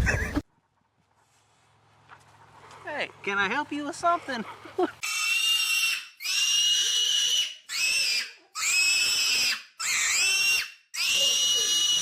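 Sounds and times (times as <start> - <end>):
farm animal squealing: 5.0 - 12.0.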